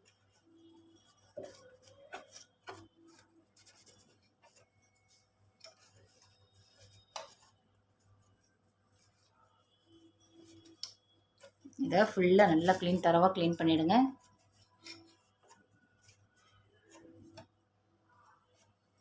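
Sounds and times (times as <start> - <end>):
hands rubbing machine parts: 14.2 - 17.5.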